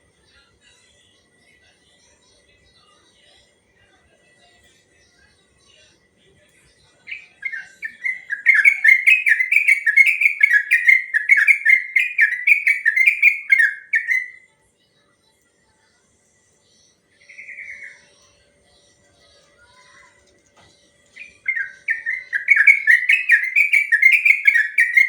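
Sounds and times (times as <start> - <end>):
bird singing whistled notes: 7.1 - 14.4, 21.2 - 25.0.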